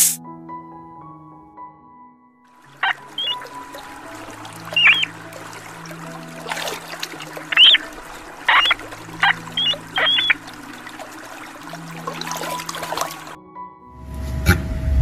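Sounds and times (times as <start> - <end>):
water trickling: 2.5 - 13.4
bird calling sharply: 2.8 - 5.9, 6.6 - 10.6.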